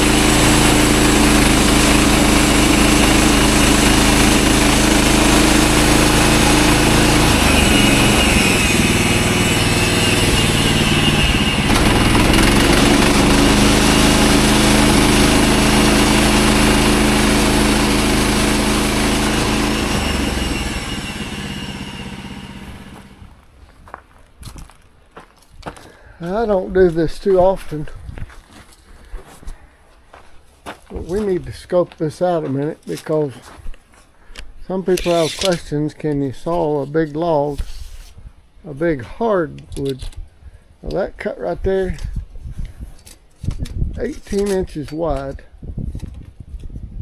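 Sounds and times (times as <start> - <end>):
sawmill gasoline engine running: 0.0 - 23.3.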